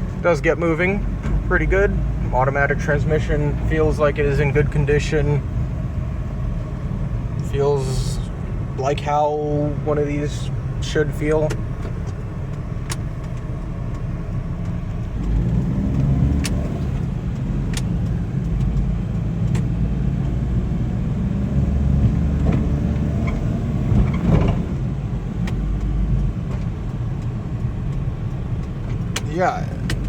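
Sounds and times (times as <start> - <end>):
truck engine from inside cab: 0.0 - 30.0
light clicks and rattles: 25.4 - 30.0.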